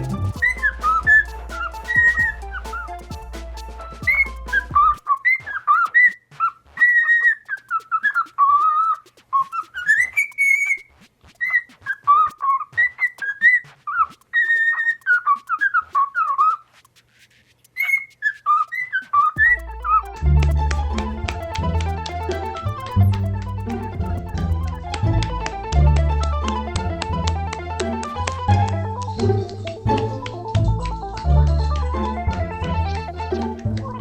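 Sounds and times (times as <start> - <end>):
background music: 0.0 - 5.0, 19.4 - 34.0.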